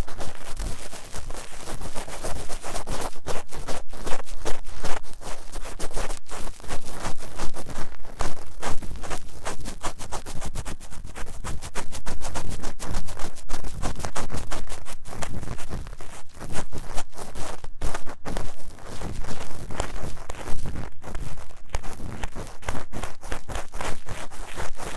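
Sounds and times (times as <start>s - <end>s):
tool scratching inside silicone ear: 8.7s - 24.9s.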